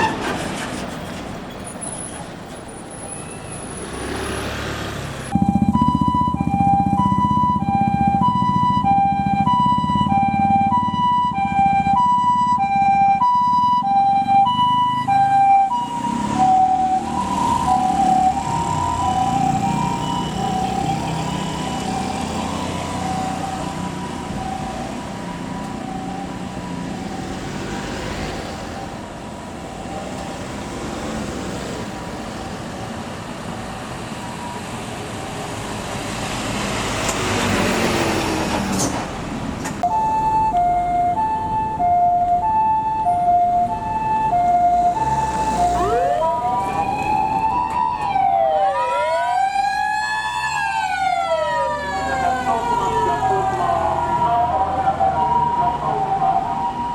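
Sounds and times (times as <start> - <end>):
traffic: 0.0 - 56.9
vehicle passing: 3.5 - 39.8, 40.4 - 56.9
high-low two-tone siren: 5.3 - 27.7, 39.8 - 56.9
wailing siren: 5.3 - 30.5, 34.0 - 35.5, 39.8 - 56.9.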